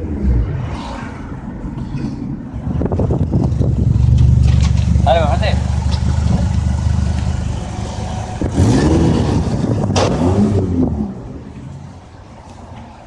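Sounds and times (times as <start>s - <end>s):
car engine revving: 3.0s - 11.9s.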